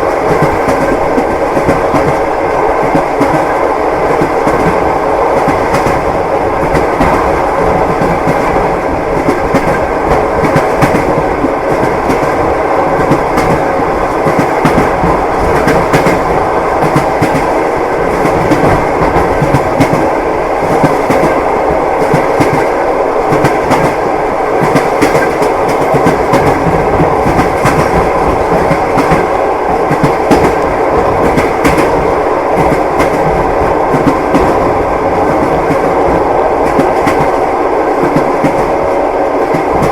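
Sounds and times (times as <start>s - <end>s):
train wheels clattering over joints: 22.0s - 37.4s.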